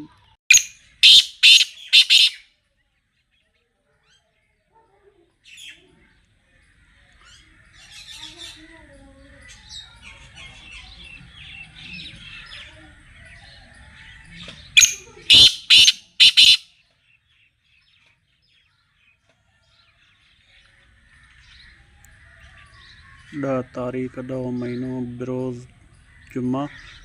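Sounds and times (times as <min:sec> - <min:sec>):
bird harsh grating calls: 0:00.0 - 0:02.4, 0:14.7 - 0:16.7
small birds chirping: 0:00.0 - 0:27.0.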